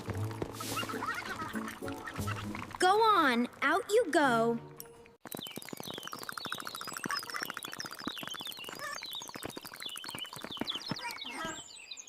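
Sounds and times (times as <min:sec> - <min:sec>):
small animals pattering footsteps: 0:00.0 - 0:11.7
high chirps and squeaks: 0:04.9 - 0:11.7.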